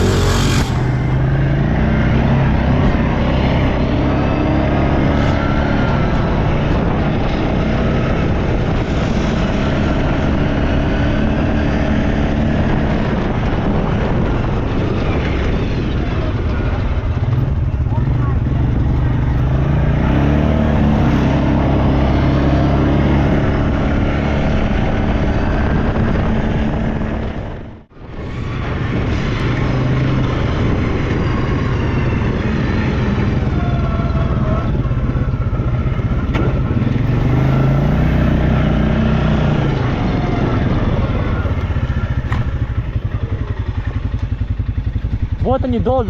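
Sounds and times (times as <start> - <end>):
quad bike engine under load: 0.0 - 9.0, 28.6 - 46.0.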